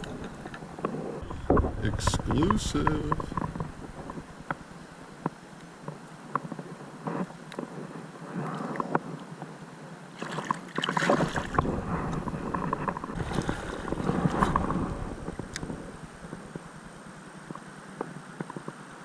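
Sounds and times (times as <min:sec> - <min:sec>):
low buffeting: 0:00.0 - 0:05.8, 0:11.4 - 0:17.5
creek water splashing: 0:10.1 - 0:17.5.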